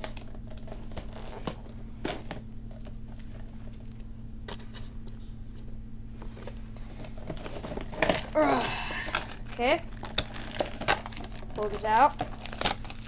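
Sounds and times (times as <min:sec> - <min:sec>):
steady low hum: 0:00.0 - 0:13.0
packaging being handled and opened: 0:06.4 - 0:13.0.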